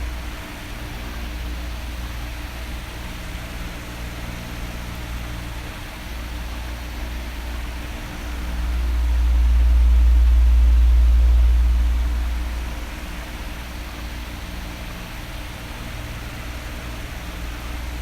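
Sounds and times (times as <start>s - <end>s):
low hum: 0.0s - 3.5s, 6.4s - 15.2s
electric fan whirring: 0.0s - 18.0s
fan airflow rumbling: 0.0s - 18.0s.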